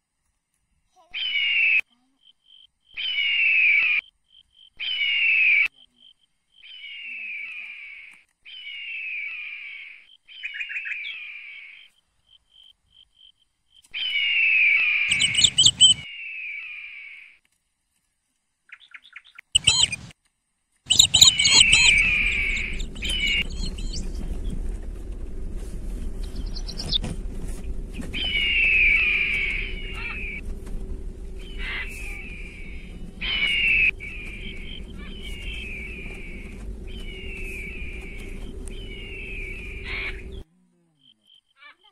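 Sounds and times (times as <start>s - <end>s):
bird calling: 1.0s - 17.4s, 18.7s - 20.1s, 20.9s - 40.4s
low rumble bursts: 20.9s - 40.5s
steady low hum: 20.9s - 40.5s.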